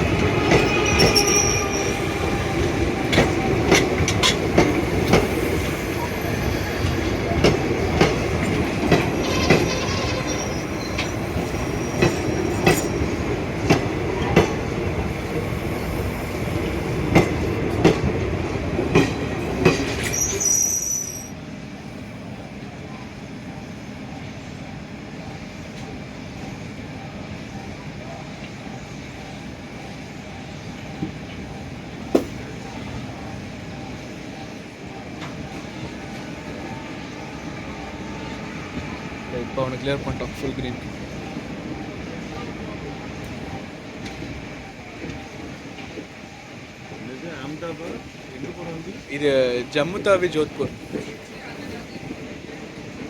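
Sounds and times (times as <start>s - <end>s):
rail joint clicks: 0.0s - 21.3s, 23.5s - 53.0s
train wheels rumbling on track: 0.0s - 53.0s
high-pitched wheel squeal: 0.6s - 2.3s, 9.2s - 13.1s, 20.0s - 21.3s.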